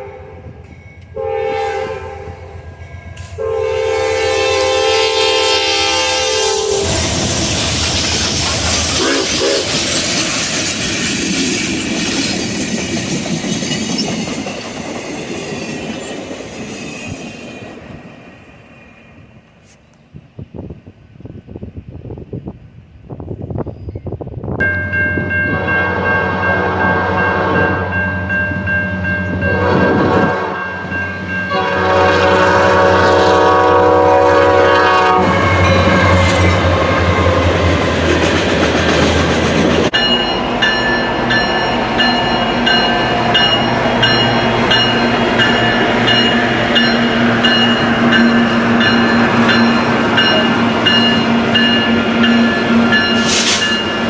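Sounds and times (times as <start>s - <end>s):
train rolling past: 0.0s - 54.0s
locomotive air horn blasts: 1.1s - 2.6s, 3.2s - 7.2s, 9.0s - 9.8s, 25.5s - 28.0s, 29.4s - 30.8s, 31.5s - 36.4s.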